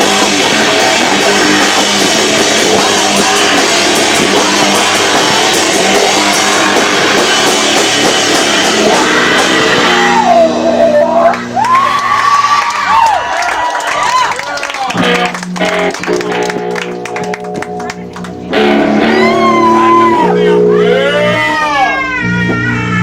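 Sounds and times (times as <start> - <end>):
distorted live rock band: 0.0 - 23.0
held notes: 15.0 - 22.8
wavering high tone: 18.9 - 22.0.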